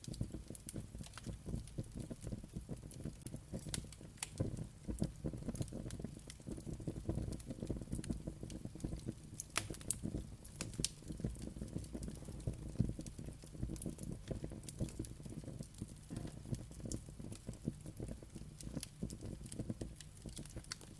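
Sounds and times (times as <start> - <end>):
sharp pops of fire: 0.0 - 20.9
wood fire crackling: 0.0 - 20.9.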